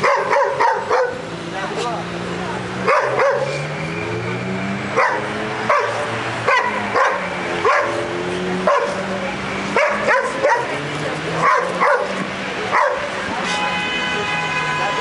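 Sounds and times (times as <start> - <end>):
dog barking: 0.0 - 1.2, 2.8 - 3.6, 5.0 - 9.1, 9.8 - 10.8, 11.4 - 13.2.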